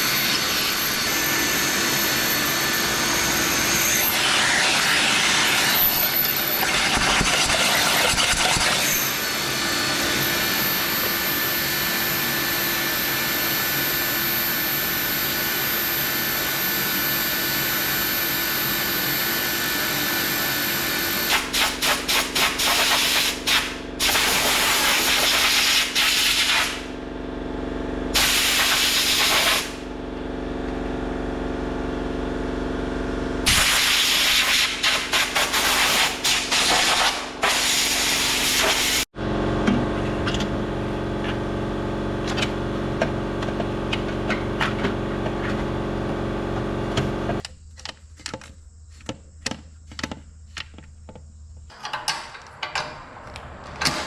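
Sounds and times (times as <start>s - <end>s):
hissing spray bursts: 21.3s - 26.9s, 28.2s - 29.8s, 33.5s - 39.0s.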